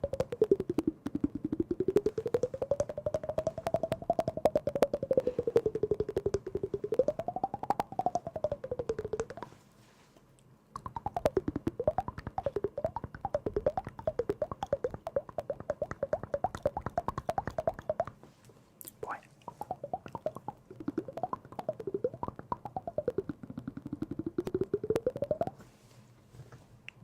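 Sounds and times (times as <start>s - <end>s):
sliding pitched melody: 0.0s - 9.4s
rapid clicking: 0.0s - 9.5s, 10.8s - 18.2s, 19.5s - 25.6s.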